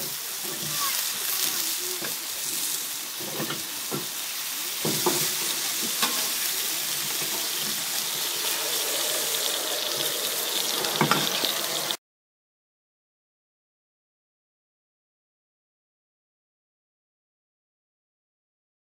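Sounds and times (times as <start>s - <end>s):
food sizzling on a griddle pan: 0.0s - 12.0s
spatula scraping a pan: 4.8s - 12.0s.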